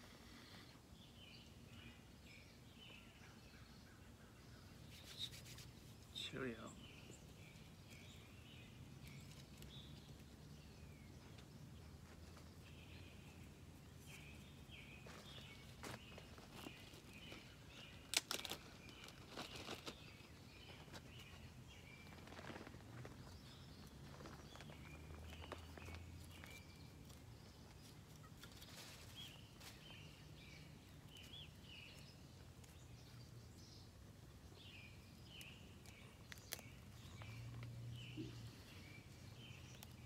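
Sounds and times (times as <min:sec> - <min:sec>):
small birds chirping: 0:00.0 - 0:40.0
twigs clicking: 0:08.9 - 0:10.4, 0:16.6 - 0:21.0, 0:22.0 - 0:33.0, 0:35.2 - 0:38.3, 0:39.3 - 0:40.0.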